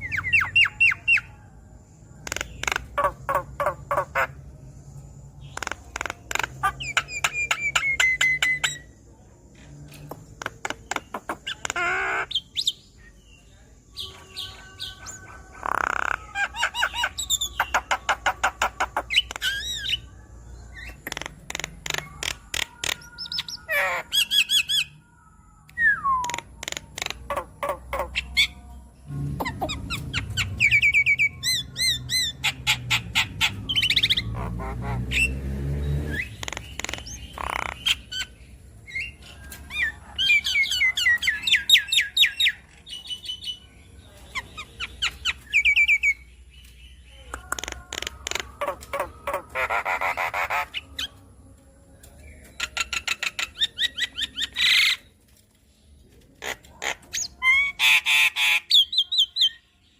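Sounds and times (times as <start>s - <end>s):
bird song chattering: 0.0s - 51.3s, 52.0s - 59.9s.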